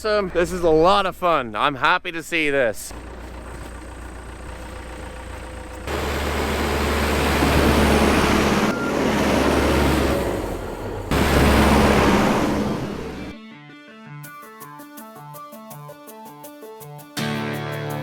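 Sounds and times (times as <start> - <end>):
diesel engine under load: 2.9 - 13.4.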